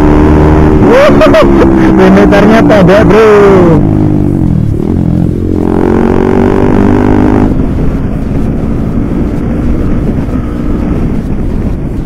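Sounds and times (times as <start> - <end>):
motorcycle engine revving: 0.0 - 12.0
wind on microphone: 3.3 - 12.0.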